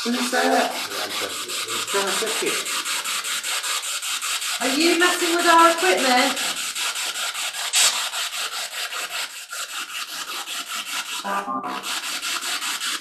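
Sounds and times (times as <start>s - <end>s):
rhythmic static pulses: 0.0s - 2.8s.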